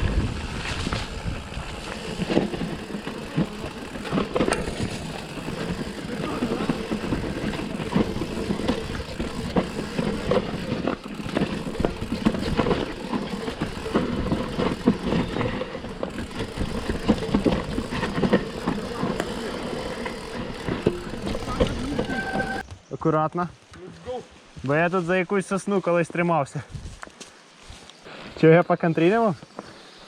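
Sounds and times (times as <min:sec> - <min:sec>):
bike tyre rumble on dirt: 0:00.0 - 0:22.7
chain and frame rattling: 0:02.0 - 0:22.6.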